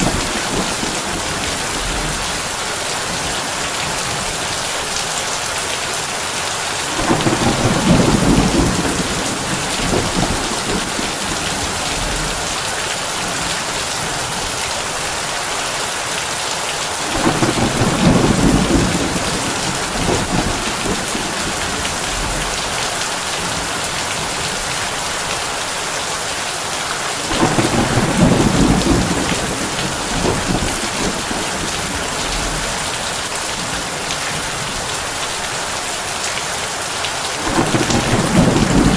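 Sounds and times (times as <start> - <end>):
thunder rumbling: 0.0 - 4.5, 6.8 - 14.4, 17.1 - 24.6, 27.2 - 34.8, 37.4 - 38.9
heavy rain on a tin roof: 0.0 - 38.9.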